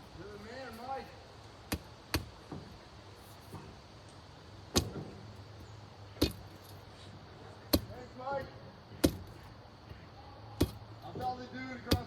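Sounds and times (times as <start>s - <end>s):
sharp knocks: 8.9s - 9.4s.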